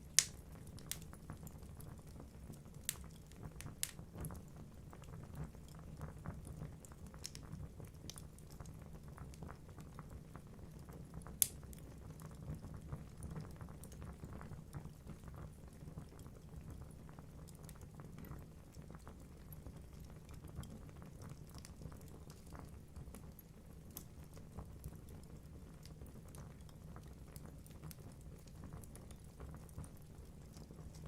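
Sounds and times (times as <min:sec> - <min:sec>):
low rumble of flames: 0:00.0 - 0:31.0
sharp pop of fire: 0:00.2 - 0:00.4
logs crackling: 0:00.2 - 0:01.1.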